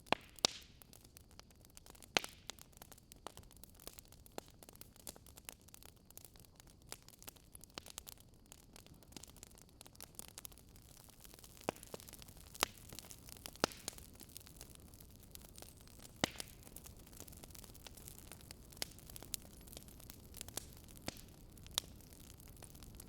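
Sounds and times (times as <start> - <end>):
campfire crackling: 0.0 - 23.0
burning wood popping: 0.1 - 23.0.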